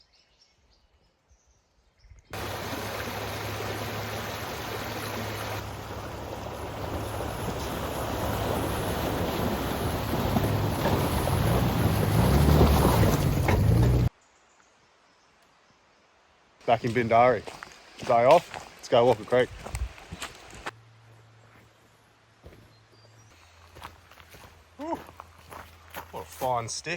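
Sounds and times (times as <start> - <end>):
rushing creek water: 2.4 - 14.1.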